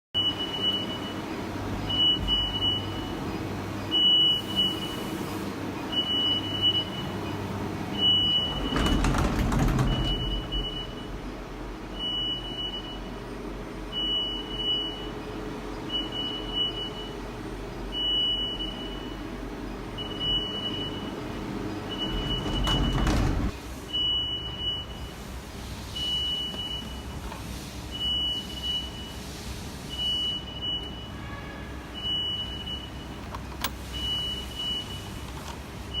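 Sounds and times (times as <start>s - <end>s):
machinery humming: 0.4s - 11.9s.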